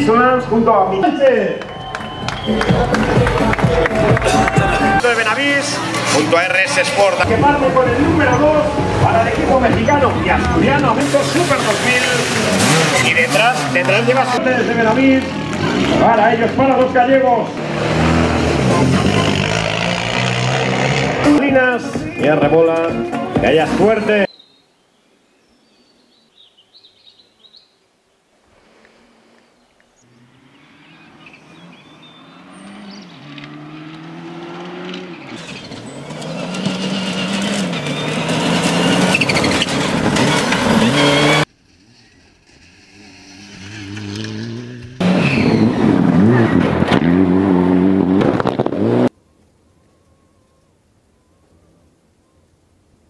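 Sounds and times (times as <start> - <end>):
rally car engine at full throttle: 2.1 - 21.4, 30.1 - 49.1.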